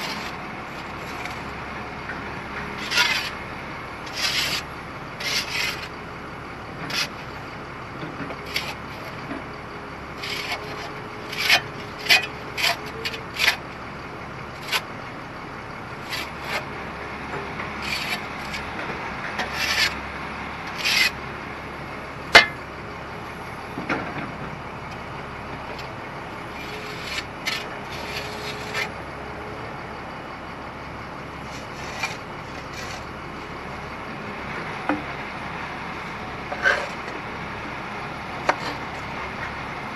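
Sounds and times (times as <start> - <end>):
timber scraping and crunching: 0.0 - 1.6, 2.6 - 3.4, 4.0 - 6.0, 6.8 - 7.3, 8.2 - 9.2, 10.2 - 13.7, 16.0 - 16.7, 17.6 - 20.0, 20.6 - 21.2, 26.5 - 29.0, 31.4 - 33.1, 36.5 - 37.2, 38.4 - 39.1
excavator engine: 0.0 - 39.9.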